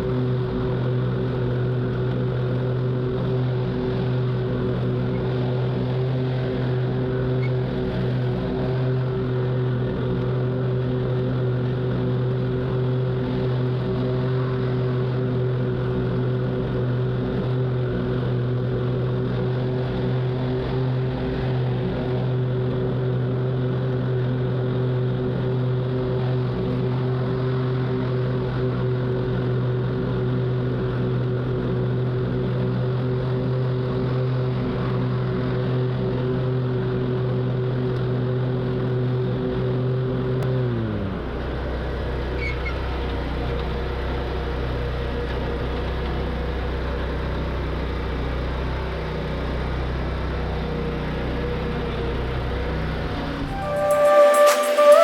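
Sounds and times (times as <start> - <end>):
lawn mower engine running: 0.0 - 26.6.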